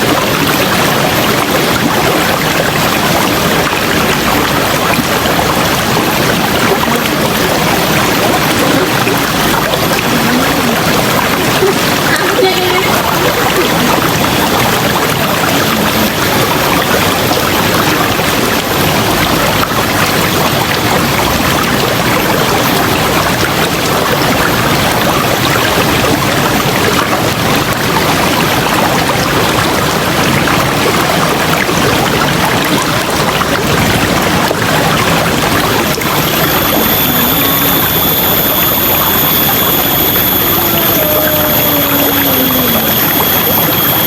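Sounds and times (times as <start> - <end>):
river water rushing: 0.0 - 44.0.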